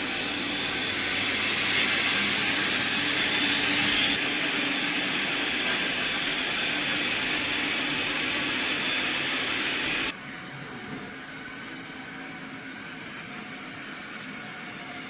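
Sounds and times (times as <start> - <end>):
robot vacuum motor running: 0.0 - 10.1.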